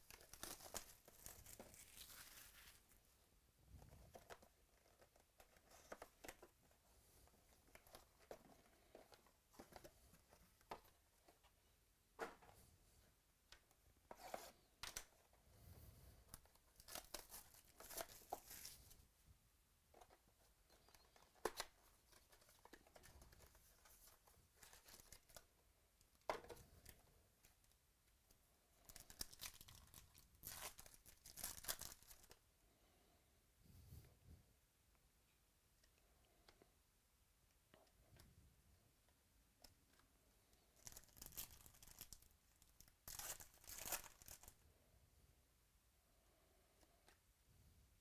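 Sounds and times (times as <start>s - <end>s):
wrappers tearing and crinkling: 0.1s - 2.8s, 28.9s - 32.3s, 40.8s - 42.2s, 43.0s - 44.5s.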